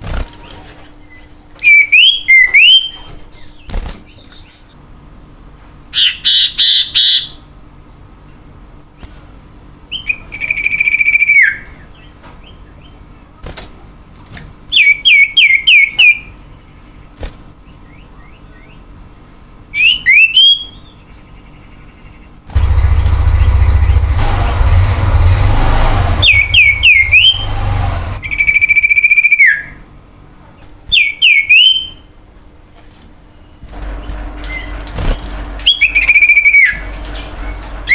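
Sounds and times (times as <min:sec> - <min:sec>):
bird whistling song: 0:01.0 - 0:04.7, 0:06.0 - 0:07.4, 0:09.9 - 0:12.9, 0:14.7 - 0:16.4, 0:19.7 - 0:22.2, 0:26.2 - 0:27.6, 0:28.2 - 0:29.8, 0:30.9 - 0:32.1, 0:35.6 - 0:37.9
loud low rumble: 0:22.5 - 0:28.6.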